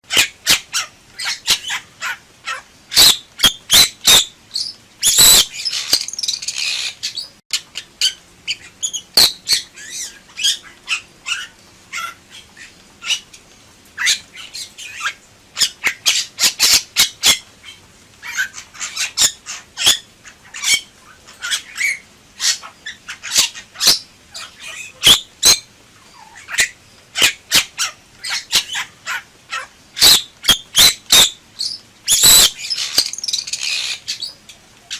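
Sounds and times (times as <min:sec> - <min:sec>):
bird calls and harsh squawks: 0:00.0 - 0:34.9.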